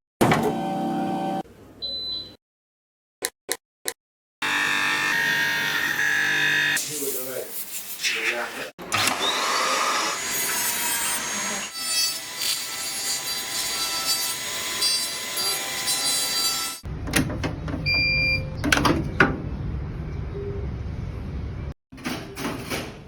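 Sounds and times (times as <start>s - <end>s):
dental drill whining: 4.4s - 6.8s, 9.0s - 16.8s.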